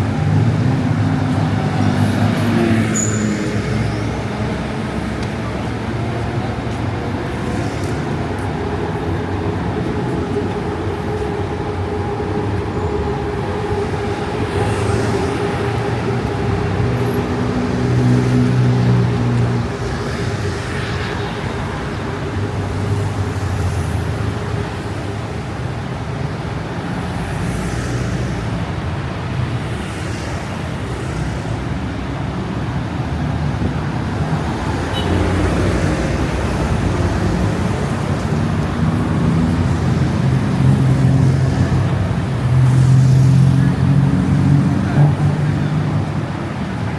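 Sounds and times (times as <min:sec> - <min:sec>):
road traffic rumble: 0:00.0 - 0:46.9
heavy vehicle engine: 0:30.2 - 0:46.9.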